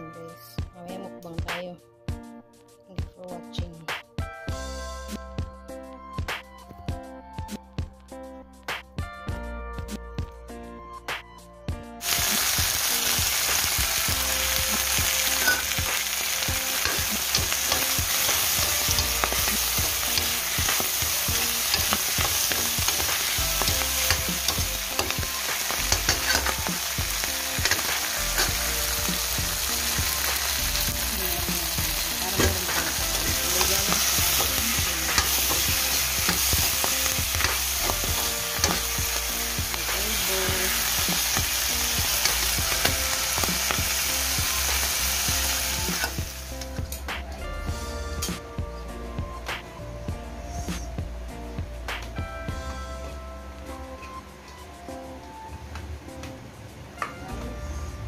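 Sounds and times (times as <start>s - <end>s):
greens sizzling in hot oil: 12.0s - 47.0s.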